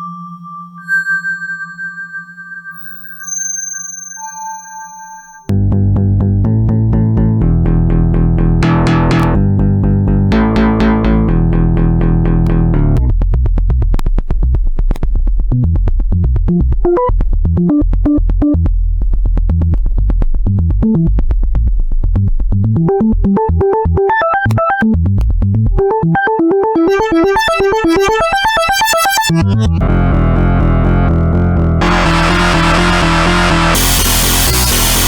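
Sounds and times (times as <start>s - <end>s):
steady synth bass: 5.5s - 14.6s, 24.8s - 35.0s
higher synth melodic line: 8.6s - 9.4s, 25.8s - 35.0s
synthesizer fast repeated notes: 8.6s - 9.5s, 25.8s - 35.0s.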